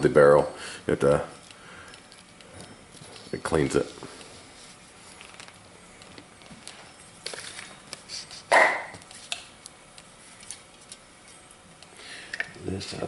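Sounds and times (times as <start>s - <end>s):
loud bark-like call: 8.5s - 8.9s.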